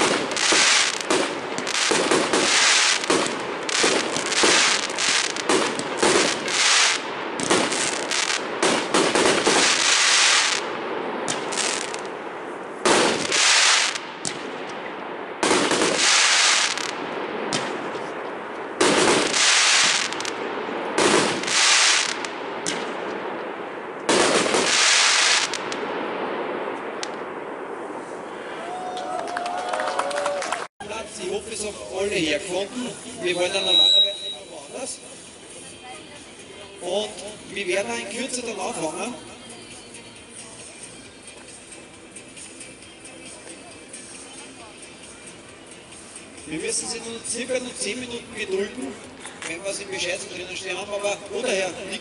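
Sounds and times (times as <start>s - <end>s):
fireworks bangs and crackles: 0.0s - 29.2s, 29.8s - 39.1s.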